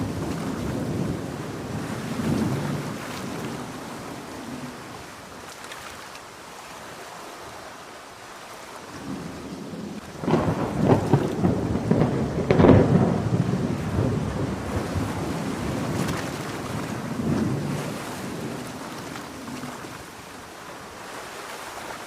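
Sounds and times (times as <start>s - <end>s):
close thunderclap: 0.0s - 3.8s, 9.0s - 18.8s
steady rain: 0.0s - 22.0s.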